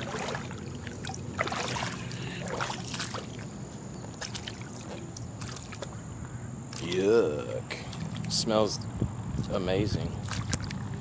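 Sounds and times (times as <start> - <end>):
boots wading through water: 0.0 - 6.1, 10.2 - 10.9.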